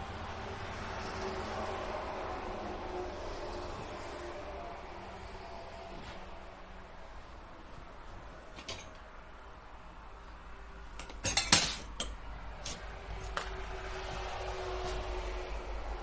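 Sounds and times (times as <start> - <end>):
hard objects clinking and knocking: 11.0 - 12.2.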